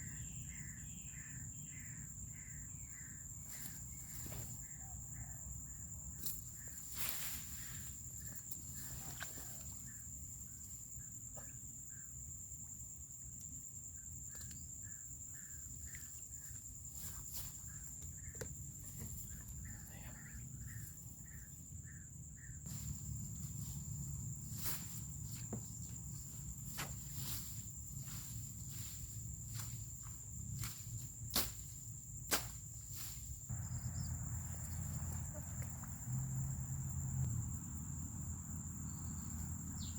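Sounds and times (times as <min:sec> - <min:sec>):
high-pitched insect drone: 0:18.9 - 0:31.5, 0:32.9 - 0:39.9
footsteps: 0:24.6 - 0:31.7.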